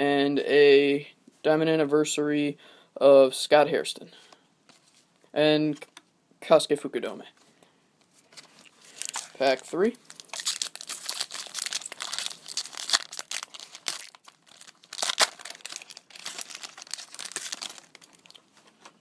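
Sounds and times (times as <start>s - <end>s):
card pack wrapper tearing and crinkling: 8.4s - 18.6s.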